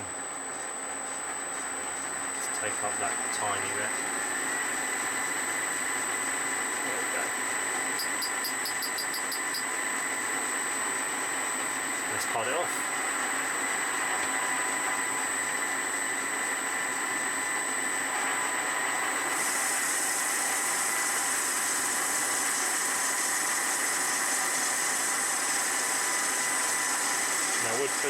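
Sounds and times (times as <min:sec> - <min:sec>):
tool cutting brass bar: 0:08.0 - 0:09.7.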